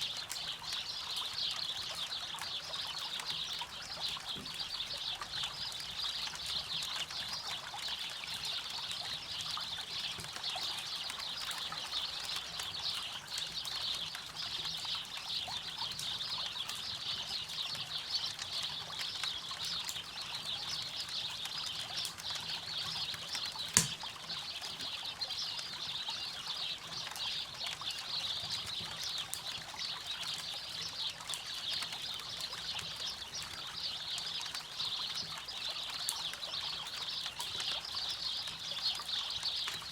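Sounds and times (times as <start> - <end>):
campfire crackling: 20.8 - 24.9
sharp pop from fire: 23.8 - 24.1.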